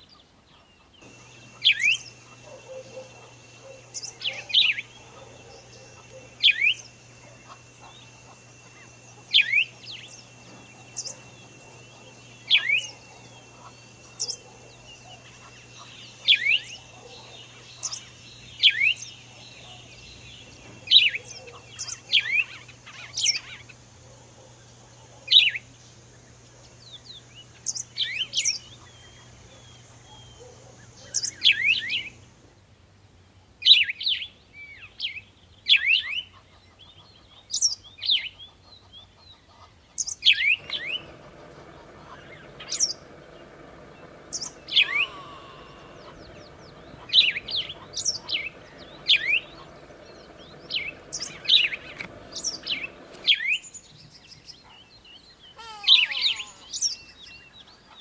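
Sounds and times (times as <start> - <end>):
bird chirping: 0.8 - 23.4, 40.0 - 54.2.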